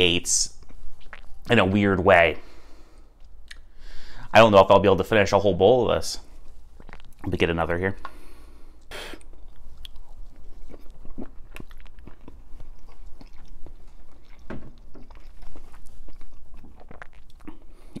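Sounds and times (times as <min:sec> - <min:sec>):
man chewing and swallowing: 0:00.6 - 0:01.5, 0:03.0 - 0:03.8, 0:06.3 - 0:07.4, 0:08.0 - 0:18.0
wet mouth clicks: 0:03.2 - 0:03.7.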